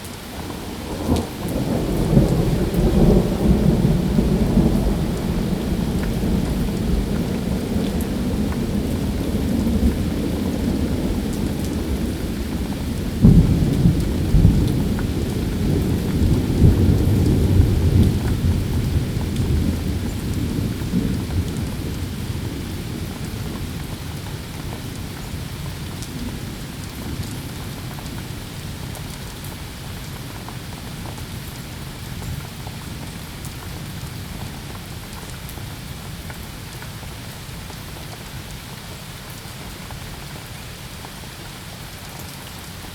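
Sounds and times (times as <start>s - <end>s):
steady rain: 0.0s - 42.9s
thunder clap and rumble: 0.5s - 29.2s.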